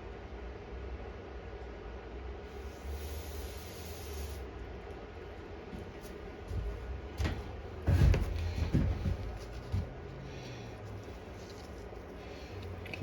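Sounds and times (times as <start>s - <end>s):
spray can hissing: 2.6s - 4.5s.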